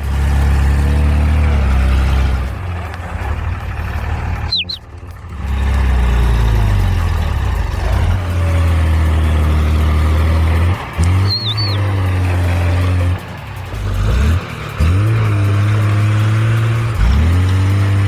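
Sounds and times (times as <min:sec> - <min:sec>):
heavy engine rumbling: 0:00.0 - 0:18.0
short high chirp: 0:04.5 - 0:04.9, 0:11.2 - 0:12.0.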